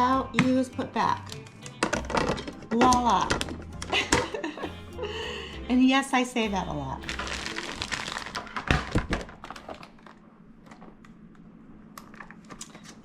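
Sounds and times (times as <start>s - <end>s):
food packages tapping and rustling: 1.2s - 4.5s, 7.1s - 11.0s.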